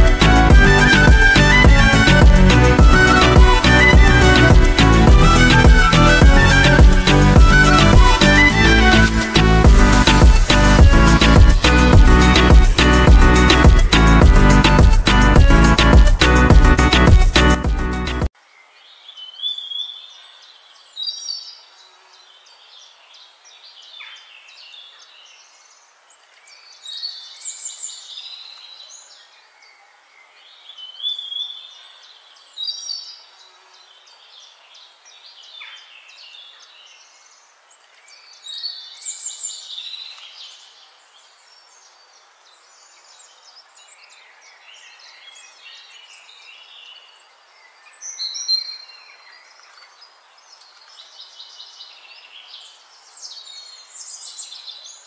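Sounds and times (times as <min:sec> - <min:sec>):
songbirds chirping and whistling: 0:30.6 - 0:55.0.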